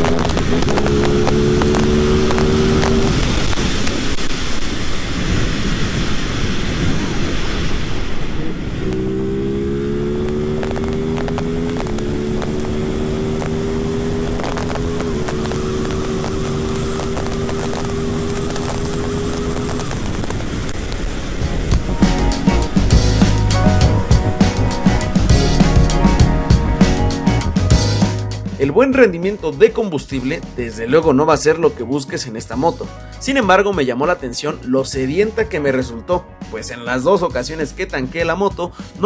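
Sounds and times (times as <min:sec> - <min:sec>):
motorcycle engine accelerating: 0:00.0 - 0:05.3, 0:06.8 - 0:28.3
wind rush: 0:00.0 - 0:27.7.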